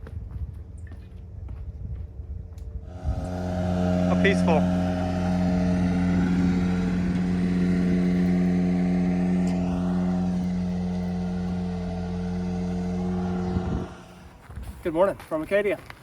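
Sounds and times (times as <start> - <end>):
engine running steadily: 2.6 - 14.8.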